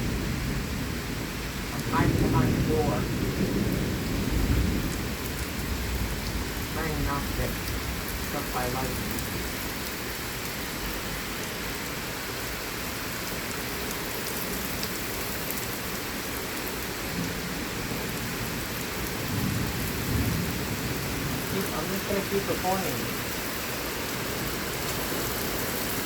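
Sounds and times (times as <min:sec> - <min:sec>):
low thunder rumble: 0:00.0 - 0:10.0, 0:17.1 - 0:23.4
heavy rain hissing: 0:00.0 - 0:26.0.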